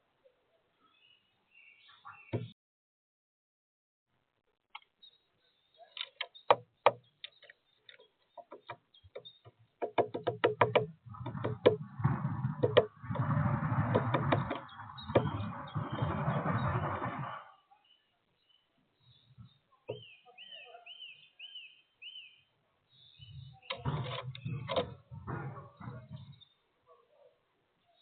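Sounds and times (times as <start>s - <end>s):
woodpecker pecking: 5.9s - 17.3s.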